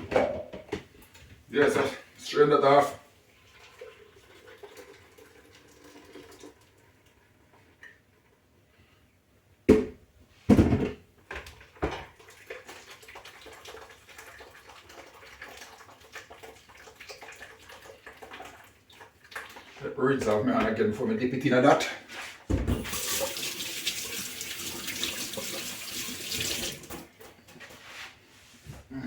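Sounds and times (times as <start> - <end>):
dishes knocking: 0.0 - 0.8, 9.7 - 11.0
water: 3.2 - 8.5, 11.6 - 20.3, 22.8 - 27.3.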